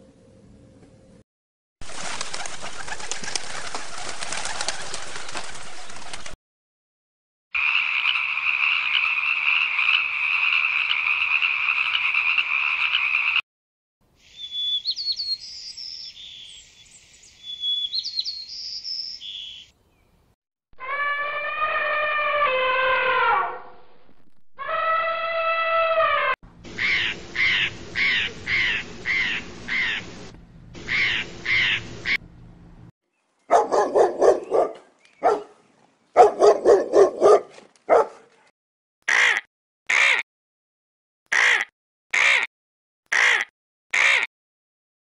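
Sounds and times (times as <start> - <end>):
elephant trumpeting: 20.8 - 23.6.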